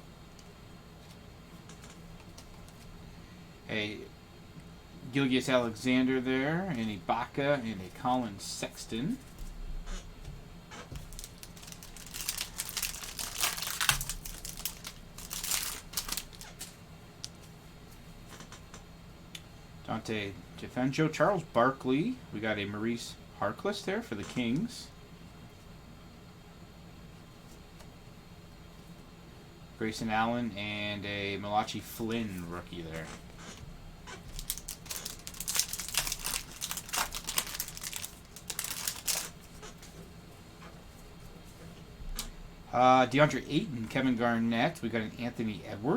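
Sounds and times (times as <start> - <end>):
plastic wrapper crinkling and tearing: 11.0 - 17.4, 34.2 - 39.7.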